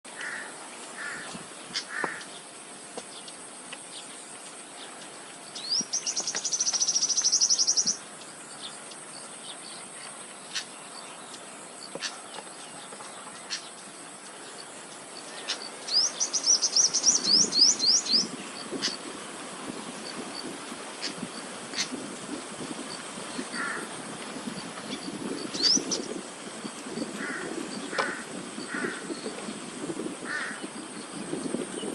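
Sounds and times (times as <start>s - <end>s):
steady high hiss: 0.1s - 31.9s
bird chirps: 4.8s - 19.0s, 24.9s - 26.1s
bird chattering calls: 24.9s - 26.1s.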